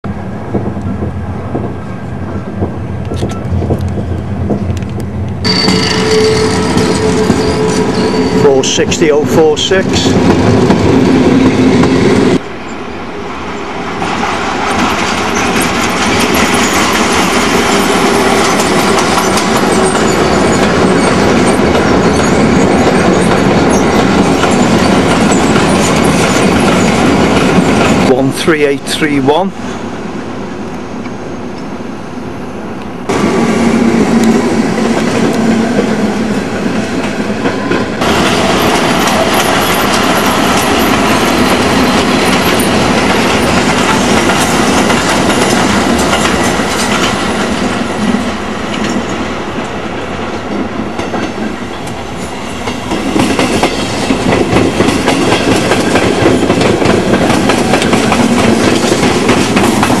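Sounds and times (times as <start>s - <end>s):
train wheels clattering over rail joints: 14.6s - 28.1s, 37.0s - 49.7s, 52.6s - 60.0s.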